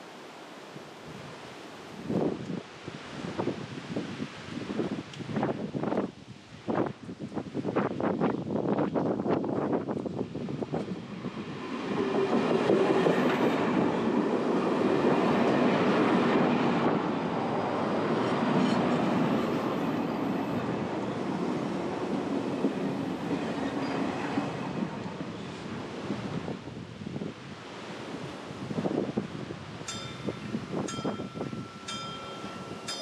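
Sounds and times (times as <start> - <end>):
wind buffeting microphone: 1.0 - 33.0
train wheels rumbling and clattering: 8.8 - 25.3.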